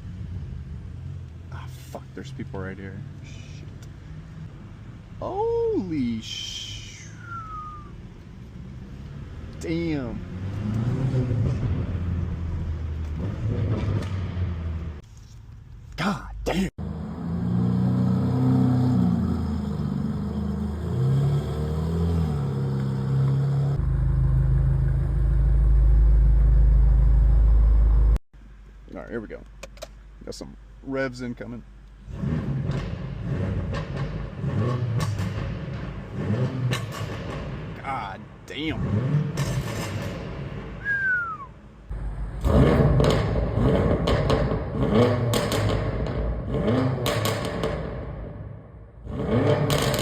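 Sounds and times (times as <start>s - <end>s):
car engine revving: 8.5s - 15.0s, 16.8s - 28.2s, 32.0s - 37.9s, 38.6s - 50.0s
exhaust crackles: 31.9s - 48.4s.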